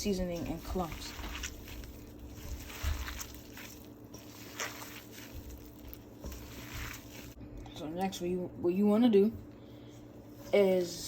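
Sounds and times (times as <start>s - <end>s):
wet squishing of ground meat: 0.0s - 7.4s.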